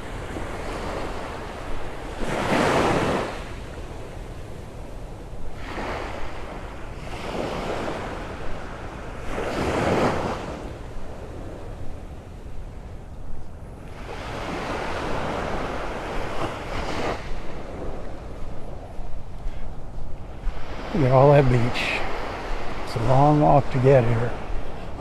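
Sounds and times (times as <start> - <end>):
surf breaking on sand: 0.0 - 3.9, 5.5 - 11.7, 13.8 - 25.0
wind on microphone: 0.0 - 25.0.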